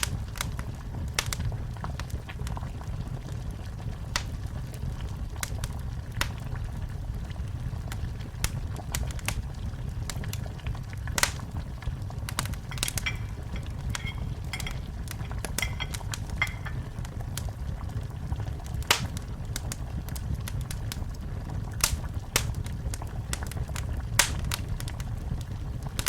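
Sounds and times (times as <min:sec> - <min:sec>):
fire low rumble: 0:00.0 - 0:26.0
wood fire crackling: 0:00.0 - 0:26.0
sharp pops: 0:11.2 - 0:11.5, 0:12.3 - 0:17.2, 0:18.9 - 0:19.2.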